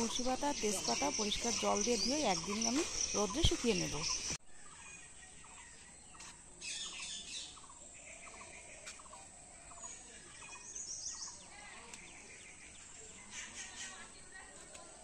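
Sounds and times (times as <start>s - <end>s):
birds chirping and calling: 0.0s - 15.0s.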